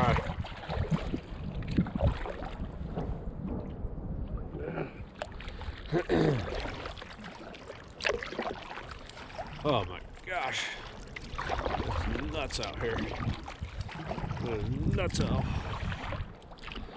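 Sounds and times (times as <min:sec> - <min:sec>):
wind rumbling on microphone: 0:00.0 - 0:06.9, 0:11.1 - 0:16.9
water splashing against canoe: 0:00.0 - 0:16.9.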